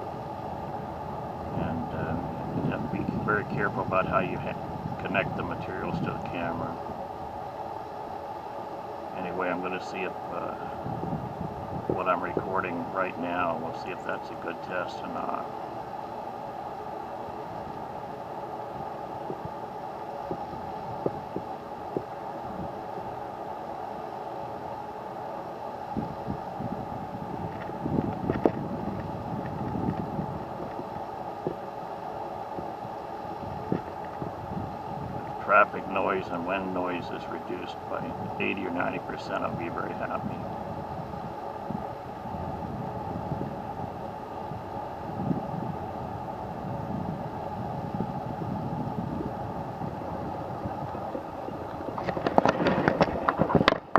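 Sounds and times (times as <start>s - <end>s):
distant traffic drone: 0.0s - 53.9s
wind buffeting microphone: 0.0s - 53.9s
sharp clicks and knocks: 52.0s - 53.9s.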